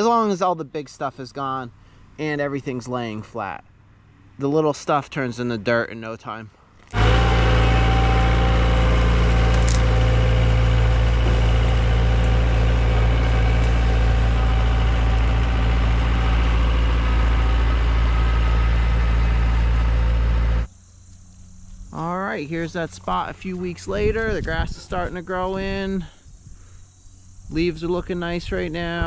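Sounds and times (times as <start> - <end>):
excavator diesel engine running: 6.9 - 20.7.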